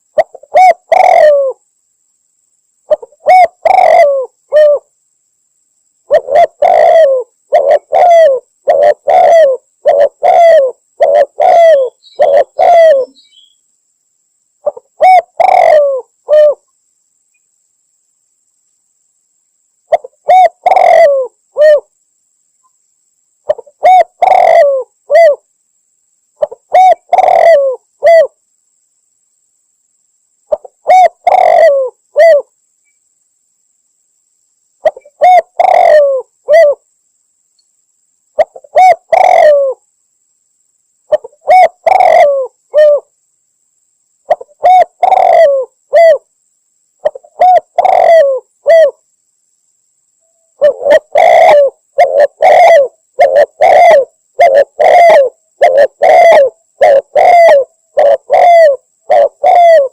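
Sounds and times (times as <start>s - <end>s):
dove cooing: 0.0s - 1.6s, 2.8s - 4.9s, 6.1s - 13.4s, 14.6s - 16.6s, 19.9s - 21.9s, 23.4s - 25.4s, 26.4s - 28.4s, 30.5s - 32.5s, 34.8s - 36.8s, 38.4s - 39.8s, 41.1s - 43.1s, 44.3s - 46.3s, 47.0s - 49.0s, 50.6s - 59.9s.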